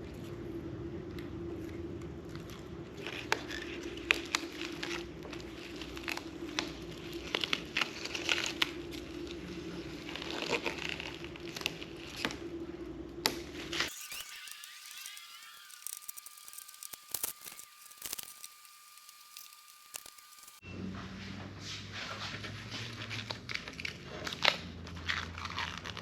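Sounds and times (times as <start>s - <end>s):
steady hum: 0.0s - 21.6s
plastic film crinkling and tearing: 2.3s - 12.6s, 13.6s - 20.6s, 23.1s - 26.0s.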